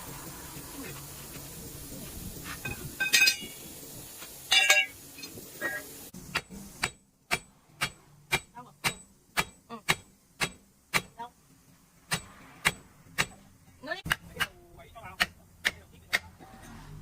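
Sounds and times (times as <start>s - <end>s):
metal ringing clangs: 2.7s - 3.6s, 4.5s - 5.4s.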